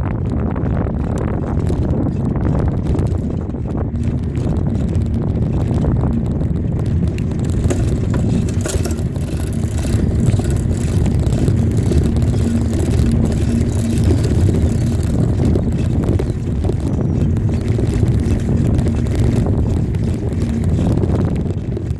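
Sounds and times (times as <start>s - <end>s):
wind rushing over microphone: 0.0s - 21.9s.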